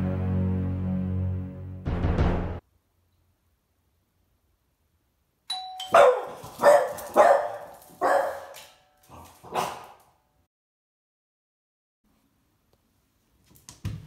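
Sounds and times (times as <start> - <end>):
two-tone doorbell chime: 5.5 - 6.4
dog barking sharply: 5.9 - 8.7, 9.5 - 10.1.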